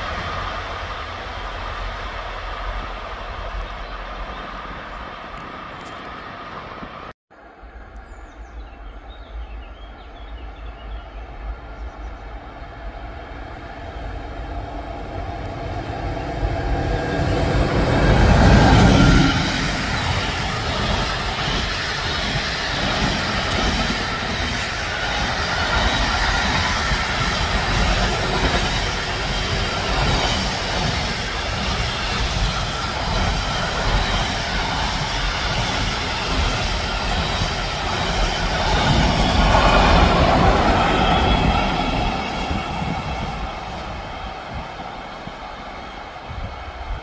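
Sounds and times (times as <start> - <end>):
train wheels rolling: 13.1 - 47.0.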